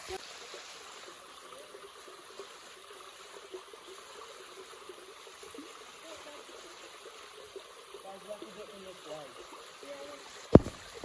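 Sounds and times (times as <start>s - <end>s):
stream water rushing: 0.0s - 11.0s
water gurgling: 0.0s - 11.0s.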